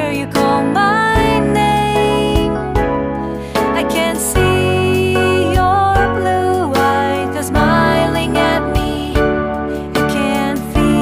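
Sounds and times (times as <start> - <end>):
upbeat music track: 0.0 - 11.0.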